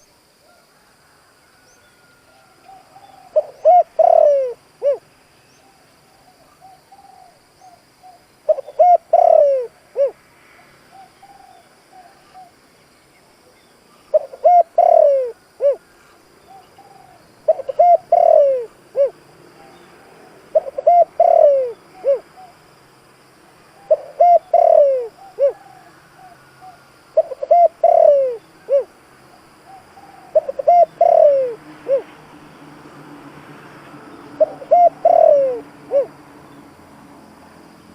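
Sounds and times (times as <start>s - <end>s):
dove cooing: 2.0s - 5.0s, 5.7s - 10.2s, 10.9s - 12.6s, 14.1s - 22.6s, 23.8s - 32.2s, 34.3s - 36.2s.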